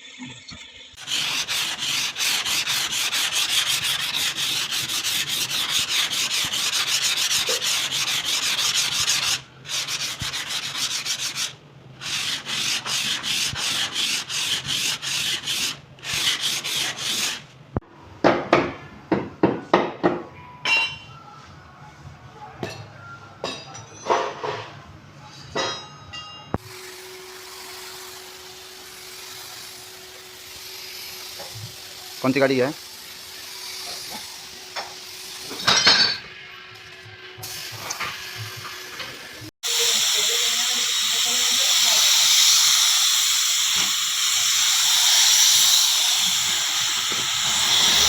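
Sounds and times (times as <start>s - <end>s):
spray gun hissing: 39.6s - 48.0s.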